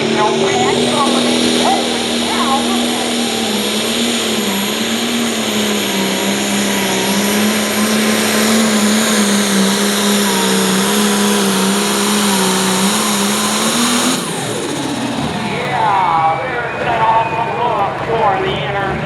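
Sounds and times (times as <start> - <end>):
diesel engine loud drone: 0.0 - 19.0.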